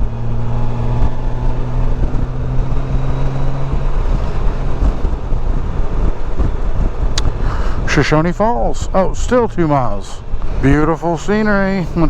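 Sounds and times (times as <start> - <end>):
motorcycle engine drone: 0.0 - 12.0
wind buffeting microphone: 0.0 - 12.0.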